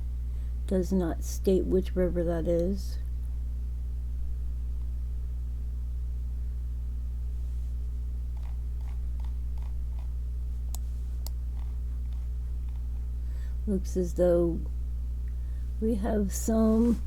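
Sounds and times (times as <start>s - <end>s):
electrical mains hum: 0.0s - 17.0s
computer mouse clicks: 8.4s - 10.1s.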